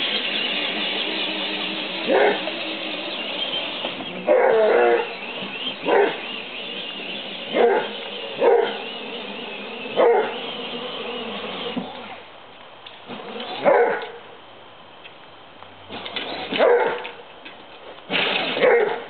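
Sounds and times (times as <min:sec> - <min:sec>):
dog barking: 0:02.1 - 0:02.4, 0:04.3 - 0:05.1, 0:05.8 - 0:06.2, 0:07.5 - 0:08.8, 0:10.0 - 0:10.4, 0:13.6 - 0:14.2, 0:16.6 - 0:17.0, 0:18.6 - 0:19.0.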